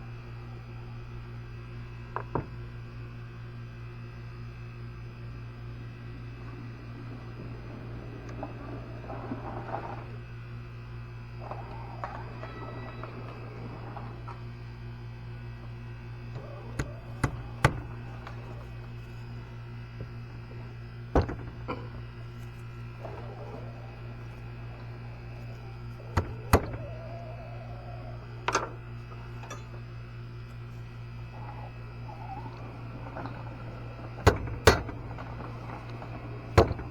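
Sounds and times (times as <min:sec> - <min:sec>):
steady low hum: 0:00.0 - 0:36.9
hand tools knocking on metal: 0:16.4 - 0:18.6.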